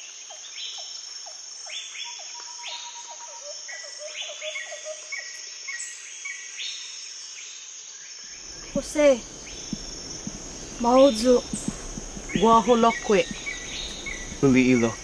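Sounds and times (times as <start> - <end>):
bird calls and chirps: 8.3 - 15.0
high-pitched insect drone: 8.3 - 15.0.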